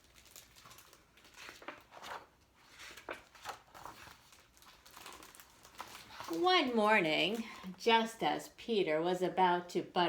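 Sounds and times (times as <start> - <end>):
paper pages rustling: 0.0 - 7.8.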